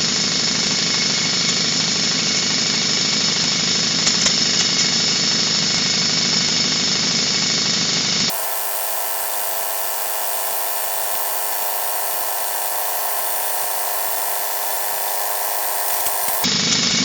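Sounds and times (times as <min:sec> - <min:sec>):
power tool whining: 0:08.3 - 0:16.5.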